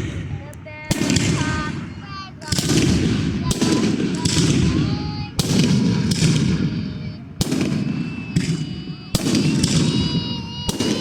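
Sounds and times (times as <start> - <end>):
fireworks bangs: 0.0 - 11.0
high whistling tones: 6.9 - 11.0.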